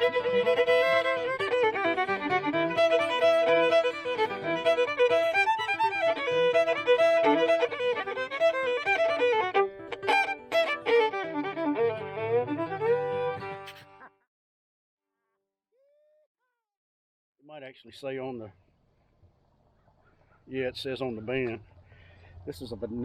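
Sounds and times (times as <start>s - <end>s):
fiddle tune: 0.0s - 14.1s.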